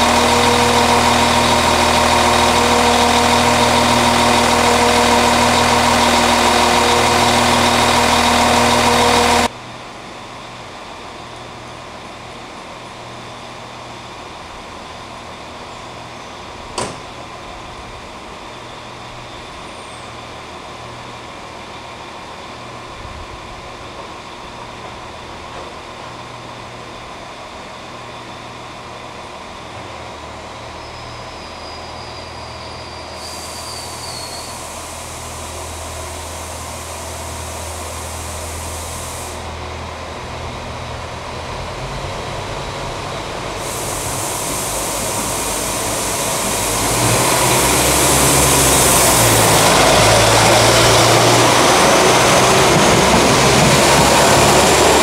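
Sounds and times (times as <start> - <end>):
diesel train engine: 0.0 - 55.0
air hiss: 33.2 - 39.5, 43.6 - 49.7.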